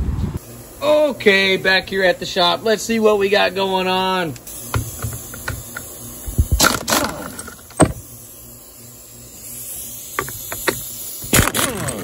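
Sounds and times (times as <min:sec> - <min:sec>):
toy truck clicks and knocks on wood: 0:10.2 - 0:12.0.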